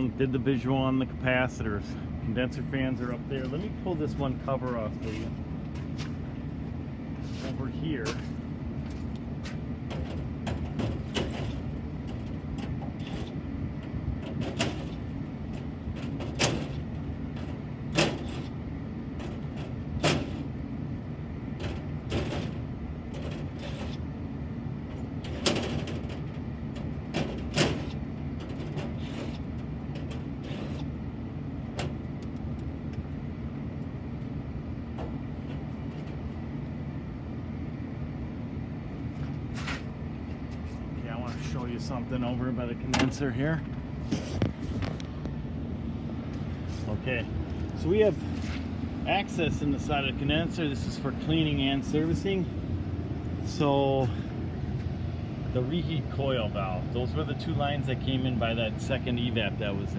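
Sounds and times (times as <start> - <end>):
low mechanical hum: 0.0 - 59.9
clicks and knocks on metal panel: 9.9 - 18.5, 24.9 - 30.9.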